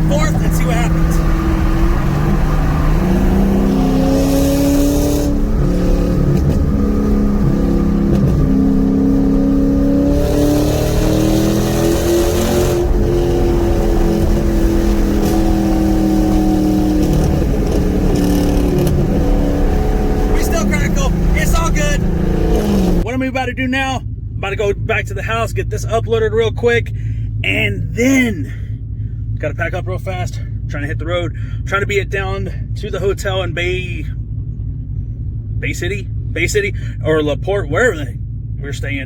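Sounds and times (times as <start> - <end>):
car engine accelerating hard: 0.0 - 23.1.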